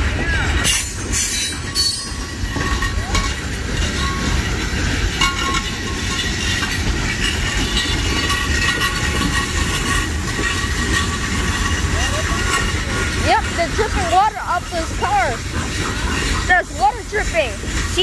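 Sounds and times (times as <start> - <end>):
train wheels rumbling and clattering: 0.0 - 18.0.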